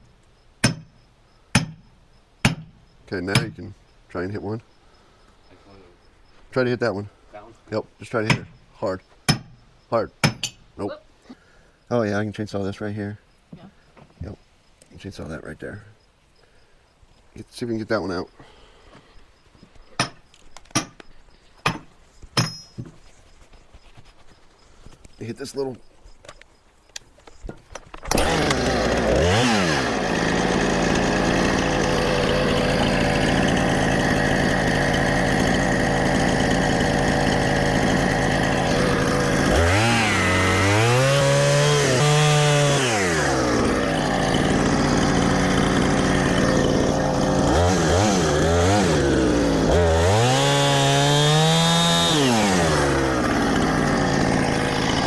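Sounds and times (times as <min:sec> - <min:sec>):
chainsaw cutting log: 0:00.6 - 0:03.7, 0:28.0 - 0:55.0.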